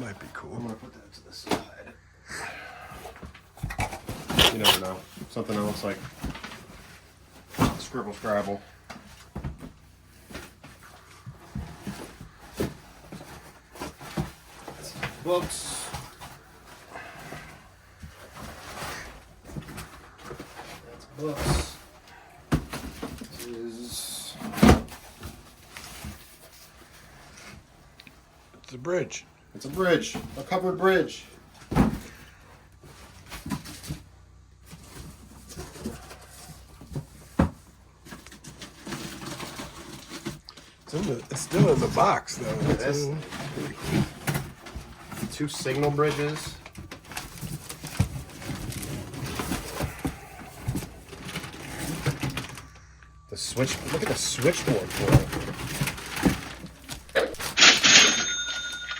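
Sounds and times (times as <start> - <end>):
handling bumps and rustles: 3.0 - 28.6, 29.4 - 52.8, 53.4 - 58.9
knocks and thumps of objects: 3.2 - 5.4, 8.9 - 23.3.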